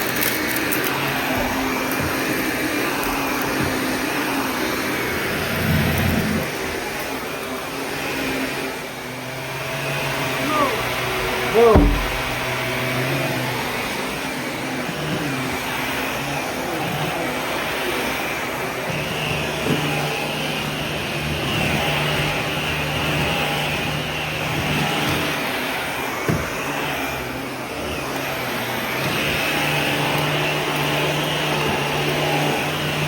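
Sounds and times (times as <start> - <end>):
vacuum cleaner running: 0.0 - 33.0
knocks: 10.8 - 12.6.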